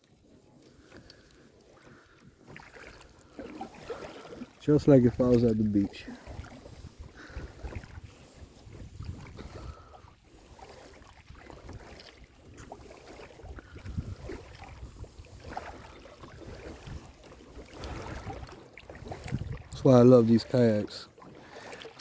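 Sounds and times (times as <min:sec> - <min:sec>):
water lapping against kayak: 0:00.0 - 0:22.0
wind rumble on microphone: 0:04.8 - 0:10.1, 0:11.2 - 0:17.1, 0:17.8 - 0:19.9.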